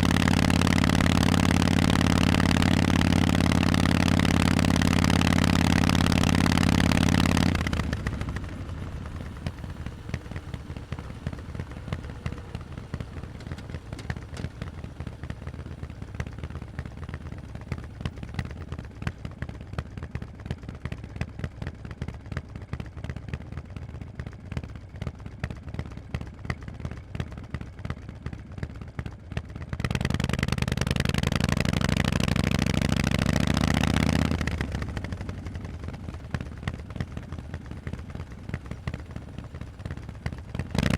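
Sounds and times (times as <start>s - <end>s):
motorcycle v-twin engine: 0.0s - 40.9s.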